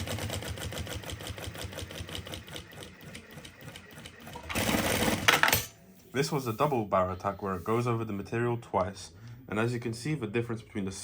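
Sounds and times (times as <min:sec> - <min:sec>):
industrial sewing machine stitching: 0:00.0 - 0:05.7.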